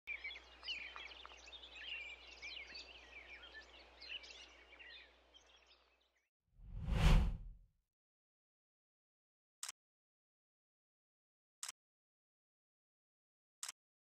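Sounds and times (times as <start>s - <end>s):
birds chirping: 0.1s - 5.8s.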